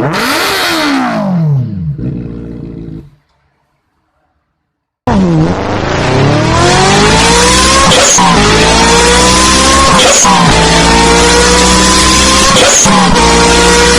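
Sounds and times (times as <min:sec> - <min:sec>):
engine accelerating hard: 0:05.1 - 0:13.9.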